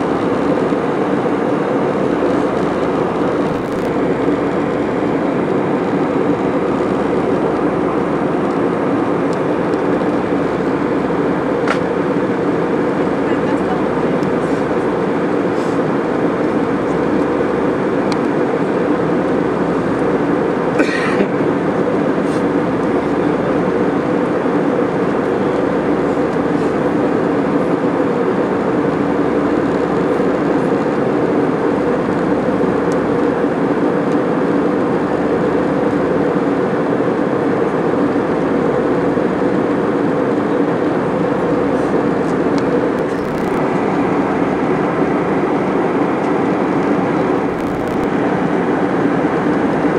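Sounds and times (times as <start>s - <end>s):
airliner cabin engine and airflow rush: 0.0s - 49.9s.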